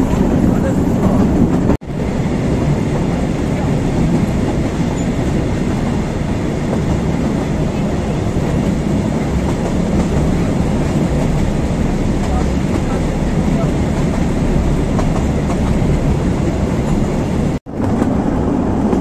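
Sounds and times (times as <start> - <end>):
train wheels on track: 0.0 - 19.0.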